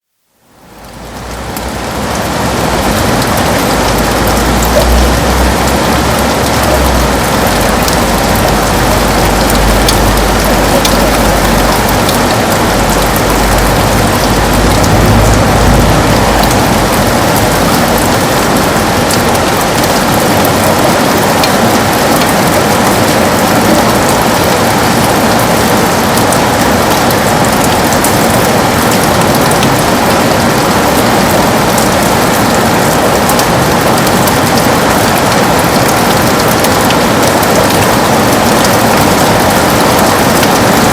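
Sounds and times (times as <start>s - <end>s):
heavy rain on window glass: 0.0s - 40.9s
low rumble: 0.6s - 20.7s.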